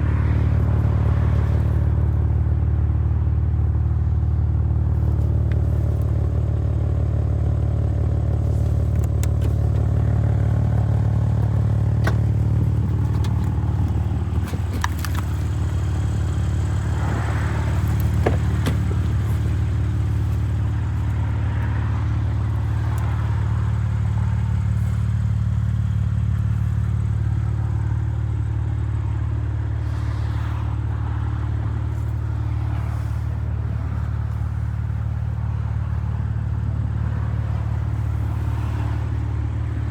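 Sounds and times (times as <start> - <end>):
car engine idling: 0.0 - 39.9
light clicks and knocks: 8.8 - 15.7, 17.1 - 20.4.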